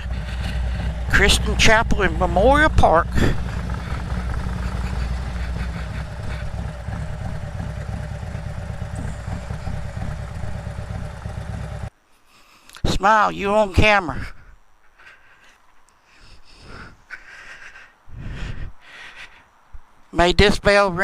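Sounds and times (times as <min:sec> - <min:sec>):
motorcycle engine low rumble: 0:00.0 - 0:11.9.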